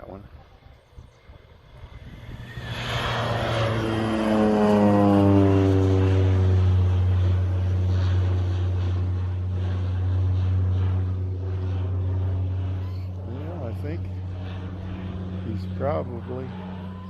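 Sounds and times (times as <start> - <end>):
propeller airplane flying past: 0.0 - 17.0.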